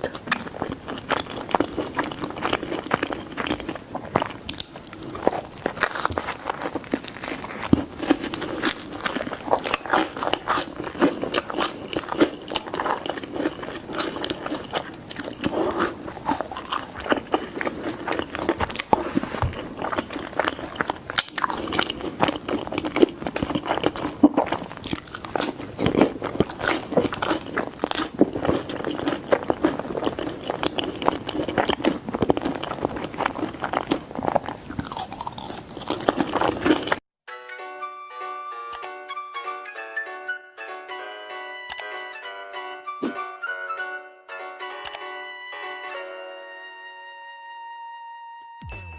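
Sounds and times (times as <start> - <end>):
person chewing pizza: 0.0 - 37.0.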